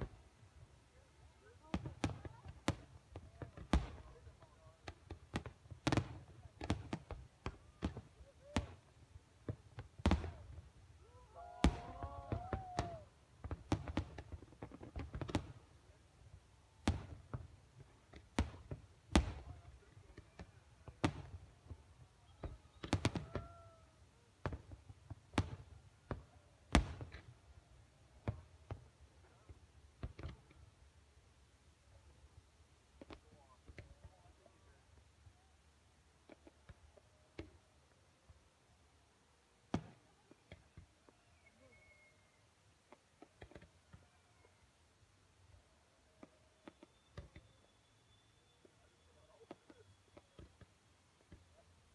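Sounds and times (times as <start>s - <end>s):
faint voices: 0.0s - 13.4s, 18.6s - 28.2s
fireworks exploding: 1.0s - 30.7s.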